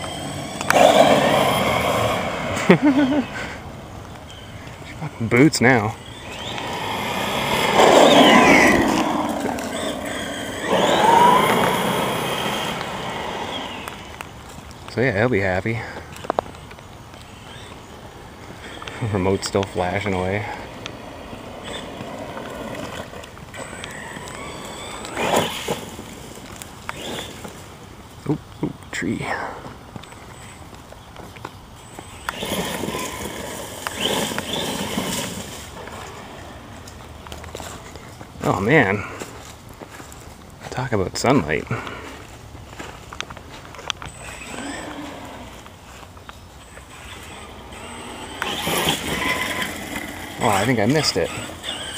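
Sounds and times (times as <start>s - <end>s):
electric motor whine: 0.0s - 3.4s, 4.3s - 14.6s, 16.1s - 27.8s, 31.8s - 38.0s, 43.6s - 51.9s
tyres rushing on ground: 0.0s - 27.8s, 31.2s - 39.4s, 40.6s - 51.9s.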